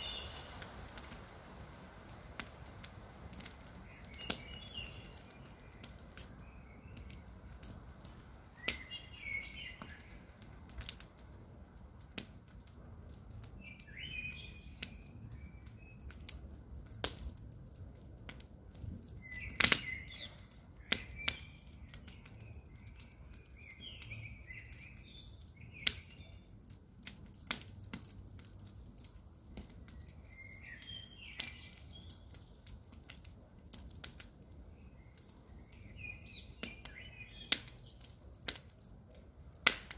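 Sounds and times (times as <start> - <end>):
bird chirps: 0.0 - 0.7, 4.0 - 5.8, 8.6 - 10.3, 19.3 - 26.4
campfire crackling: 0.0 - 39.9.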